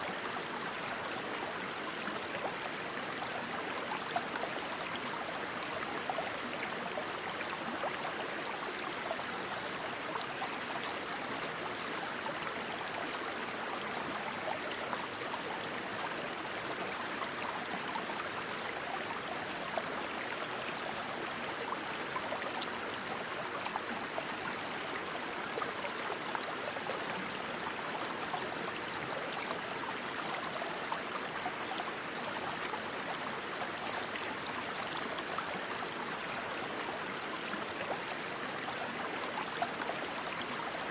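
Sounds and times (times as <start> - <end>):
stream water rushing: 0.0 - 40.9.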